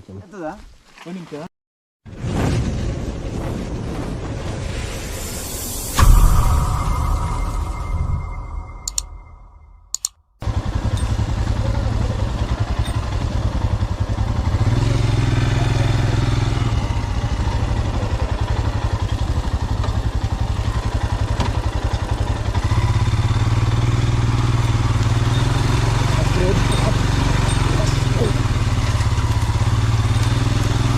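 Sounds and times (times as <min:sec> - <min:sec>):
motorcycle engine running: 0:10.0 - 0:30.9.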